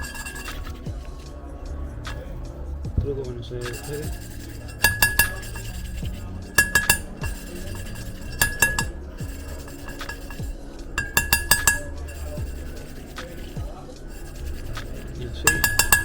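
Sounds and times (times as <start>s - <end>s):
ringing metal clinks: 14.2s - 16.0s.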